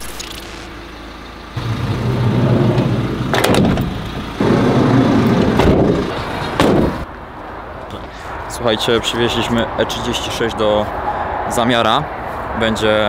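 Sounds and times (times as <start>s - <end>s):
car engine running: 0.0s - 7.1s.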